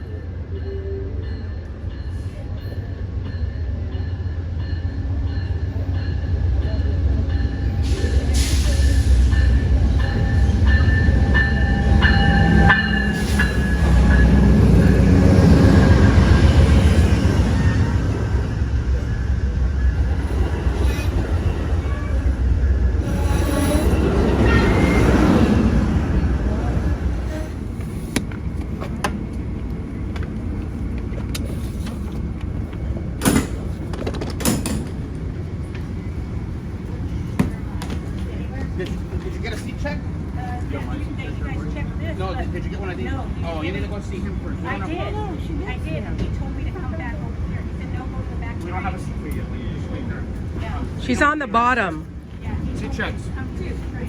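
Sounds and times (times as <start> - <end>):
train rumbling: 0.0 - 54.0
train brakes squealing: 7.5 - 18.6, 23.0 - 28.2.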